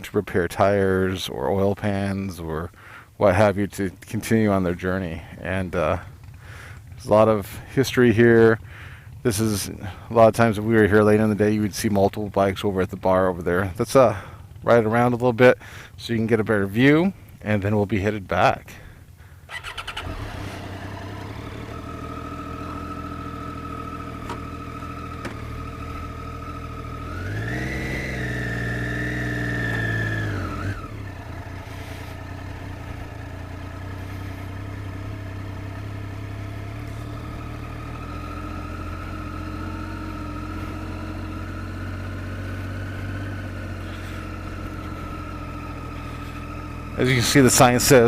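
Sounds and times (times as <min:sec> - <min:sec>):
motorcycle engine revving: 0:19.5 - 0:48.0.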